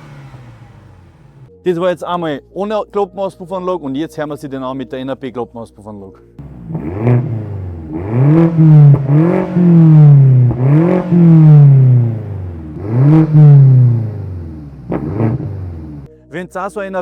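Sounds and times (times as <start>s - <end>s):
car engine revving: 0.0s - 1.5s, 6.4s - 16.1s.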